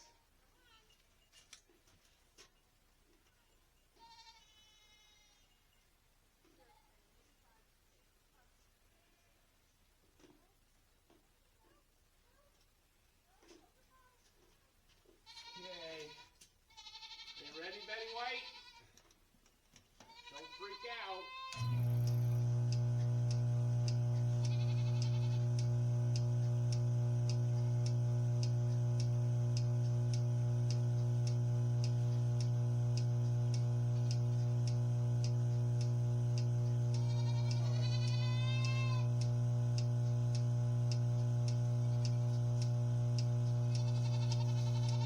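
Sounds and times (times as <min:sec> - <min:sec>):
goat bleating: 0:04.0 - 0:05.4, 0:15.3 - 0:18.9, 0:20.1 - 0:21.6, 0:24.4 - 0:25.4, 0:37.0 - 0:39.1, 0:43.9 - 0:45.0
pulsator ticking: 0:21.6 - 0:45.0
vacuum pump hum: 0:21.6 - 0:45.0.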